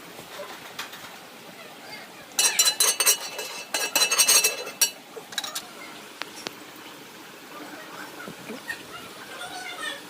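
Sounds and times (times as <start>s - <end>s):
metal dishes clattering: 2.4s - 5.7s.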